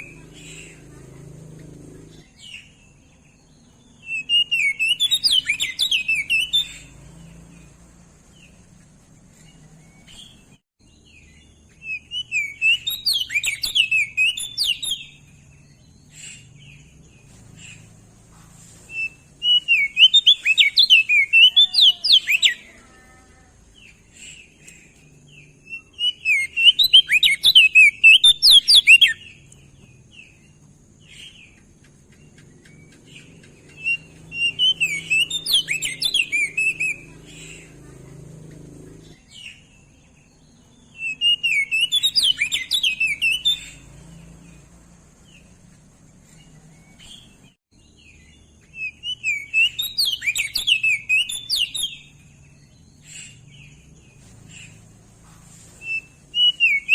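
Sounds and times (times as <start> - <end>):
bird singing warbled notes: 0.0 - 18.0, 32.3 - 45.7, 46.3 - 55.0.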